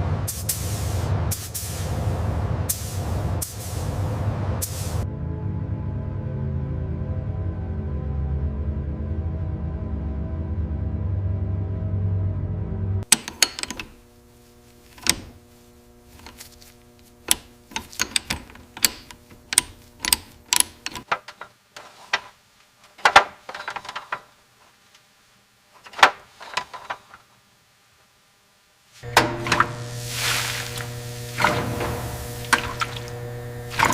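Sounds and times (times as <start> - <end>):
low steady hum: 13.0 - 22.9, 23.5 - 33.9.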